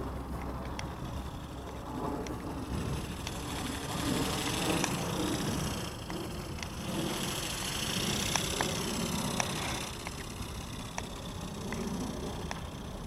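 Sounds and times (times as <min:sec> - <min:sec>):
wind buffeting microphone: 0:00.0 - 0:13.0
faint clicks: 0:08.2 - 0:12.8.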